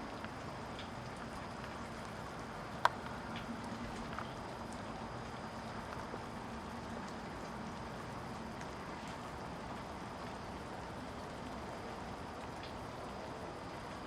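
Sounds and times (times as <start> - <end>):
faint ticks: 0.0 - 6.2, 12.4 - 12.9
faint steady hum: 0.0 - 14.0
wind: 0.0 - 14.0.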